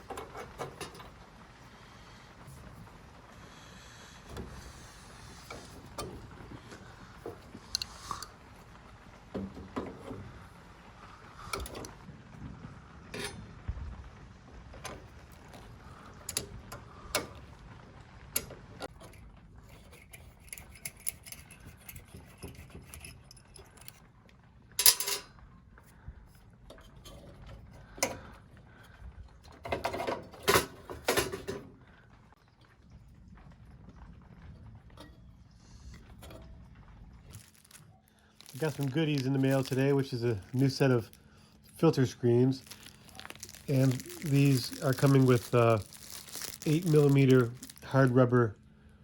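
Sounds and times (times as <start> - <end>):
metal parts clattering: 19.8 - 24.0, 24.8 - 25.3, 38.4 - 41.1, 42.5 - 48.0
metal tools clinking: 24.8 - 25.3.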